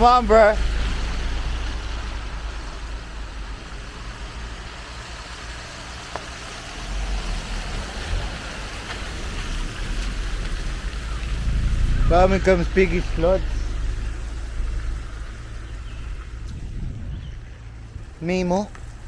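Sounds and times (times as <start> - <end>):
rushing haze: 0.0 - 19.0
vehicle engine running slowly: 0.0 - 19.0.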